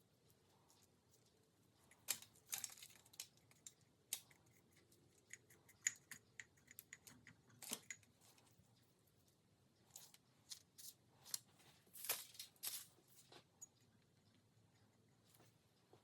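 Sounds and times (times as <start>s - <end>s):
small clicks and taps: 1.8s - 8.9s.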